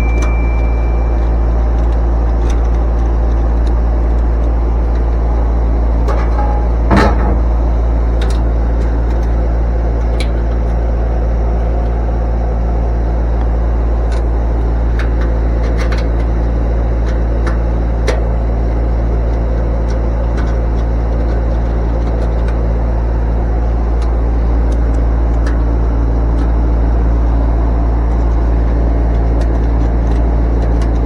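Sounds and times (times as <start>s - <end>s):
machinery humming: 0.0s - 31.0s.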